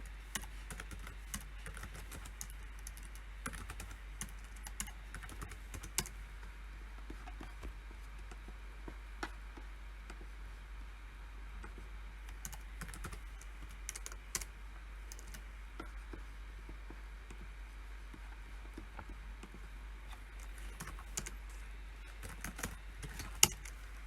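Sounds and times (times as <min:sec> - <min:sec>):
computer keyboard typing: 0:00.2 - 0:06.2, 0:12.3 - 0:16.0, 0:19.0 - 0:23.9.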